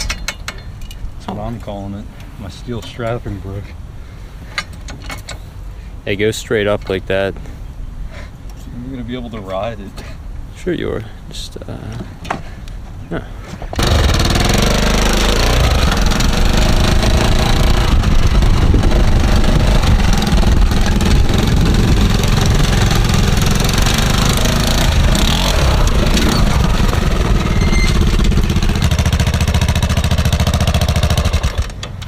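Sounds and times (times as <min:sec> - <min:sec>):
quad engine running loud: 0:13.8 - 0:31.8.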